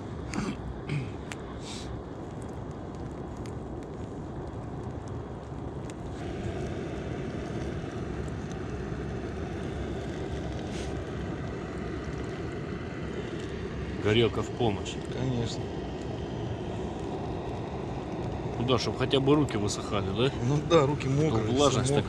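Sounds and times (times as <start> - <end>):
gas burner torch roaring: 0.0 - 22.0.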